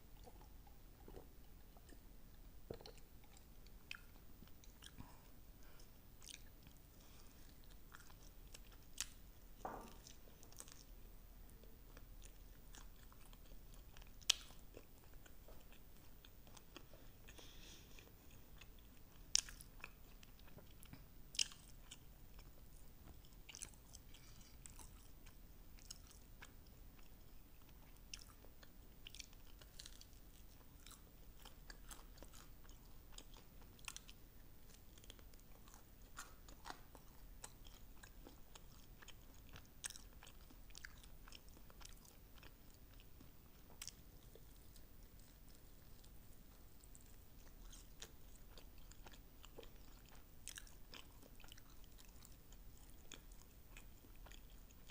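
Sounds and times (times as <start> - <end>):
wet chewing: 28.1 - 54.9.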